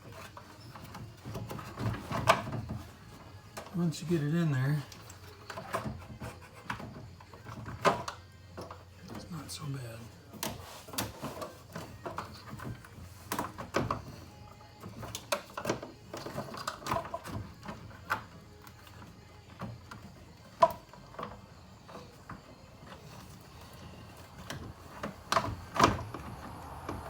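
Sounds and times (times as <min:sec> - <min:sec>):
plastic knocks clicks and scrapes: 0:00.0 - 0:03.7, 0:04.8 - 0:09.3.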